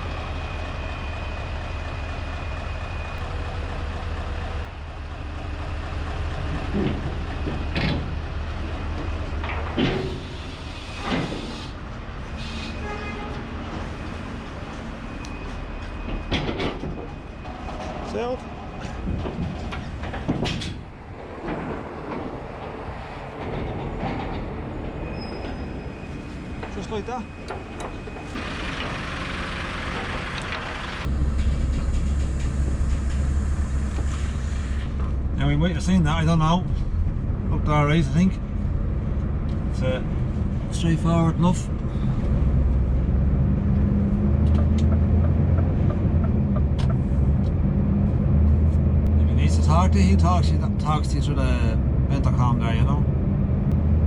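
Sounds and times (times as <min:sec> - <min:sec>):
hiss: 0:10.1 - 0:11.8, 0:33.0 - 0:35.0
low engine rumble: 0:26.4 - 0:54.0.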